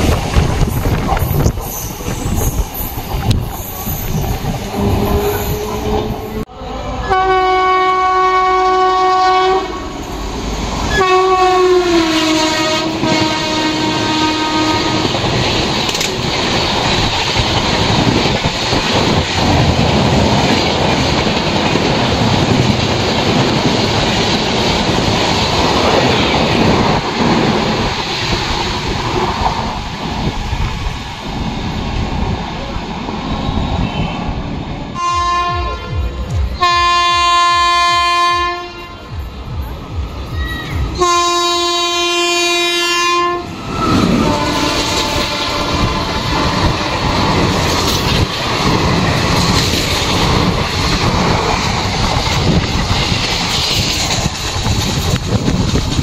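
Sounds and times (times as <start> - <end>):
train horn blasts: 4.8 - 10.0, 10.9 - 15.2, 34.9 - 39.2, 40.7 - 47.2
wheels clattering over rail joints: 15.1 - 30.2.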